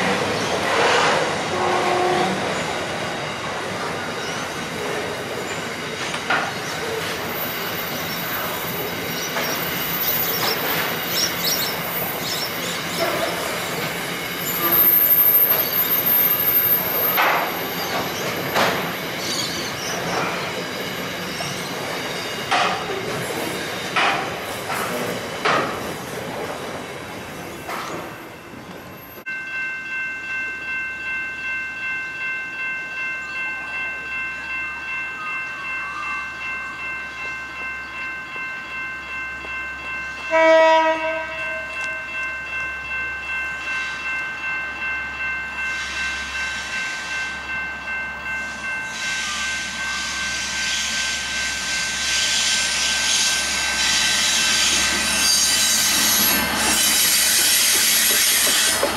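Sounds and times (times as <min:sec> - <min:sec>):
approaching train rumble: 0:00.0 - 0:58.9
train horn blast: 0:00.7 - 0:02.6, 0:14.5 - 0:15.5, 0:40.3 - 0:42.1
level crossing bells ringing: 0:03.2 - 0:23.0, 0:29.0 - 0:52.1
freight wagons clattering on rails: 0:17.0 - 0:26.5.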